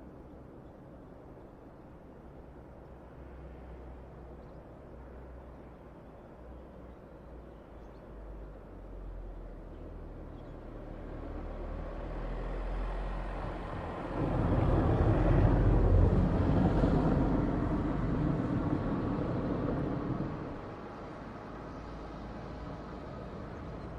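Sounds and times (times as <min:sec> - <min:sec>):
jet engines rushing on landing: 0:13.5 - 0:21.1.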